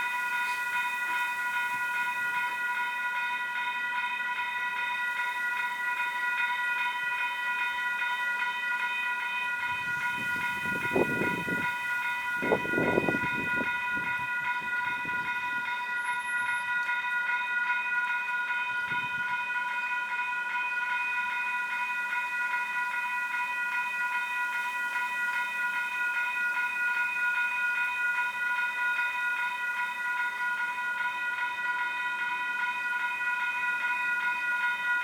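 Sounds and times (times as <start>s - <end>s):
freight train rumble: 0.0s - 20.6s
crossing bell ringing: 0.0s - 35.0s.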